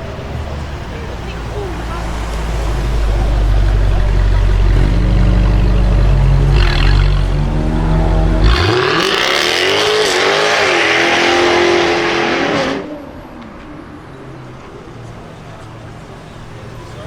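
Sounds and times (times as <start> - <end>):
car engine accelerating hard: 0.4 - 13.1.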